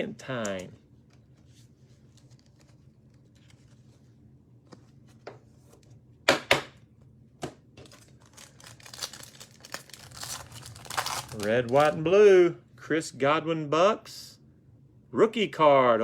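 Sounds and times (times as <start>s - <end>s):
plastic wrapper crinkling: 2.0s - 3.8s, 7.8s - 12.1s
plastic wrapper snapping: 7.8s - 12.0s.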